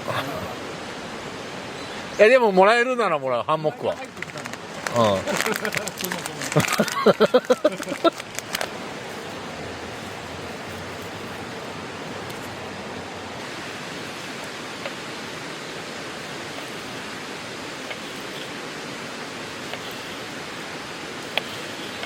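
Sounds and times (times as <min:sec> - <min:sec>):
voices: 0:00.0 - 0:13.5
steady rushing noise: 0:00.0 - 0:22.0.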